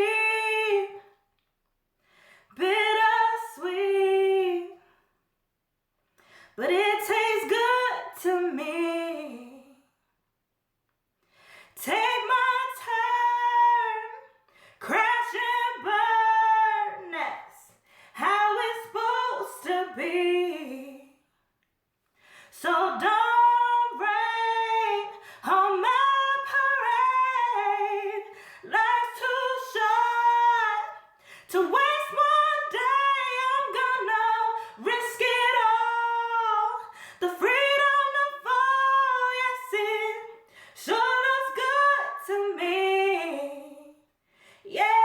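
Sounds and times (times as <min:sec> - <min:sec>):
breaths: 0:02.0 - 0:02.6, 0:06.1 - 0:06.6, 0:11.2 - 0:11.8, 0:14.4 - 0:14.8, 0:17.7 - 0:18.2, 0:22.0 - 0:22.6, 0:25.1 - 0:25.5, 0:28.3 - 0:28.7, 0:31.0 - 0:31.5, 0:36.8 - 0:37.2, 0:40.4 - 0:40.8, 0:44.1 - 0:44.7
woman singing unaccompanied: 0:02.6 - 0:04.8, 0:06.6 - 0:09.8, 0:11.8 - 0:21.2, 0:22.5 - 0:44.0, 0:44.7 - 0:45.0.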